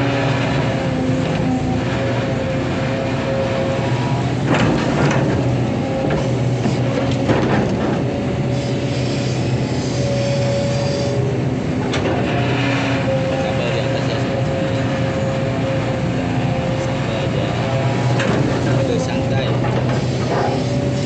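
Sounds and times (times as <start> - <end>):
excavator diesel engine: 0.0 - 21.0
scraping clunks: 3.9 - 8.2, 11.7 - 14.6, 18.0 - 21.0.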